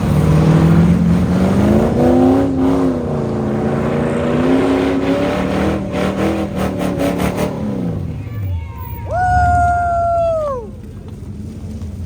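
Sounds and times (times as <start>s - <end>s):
car engine revving: 0.0s - 8.1s.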